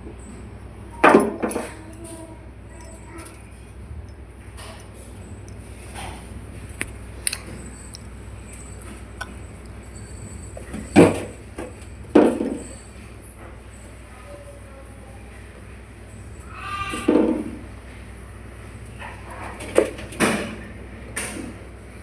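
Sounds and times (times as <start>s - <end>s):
steady low hum: 0.0s - 16.6s.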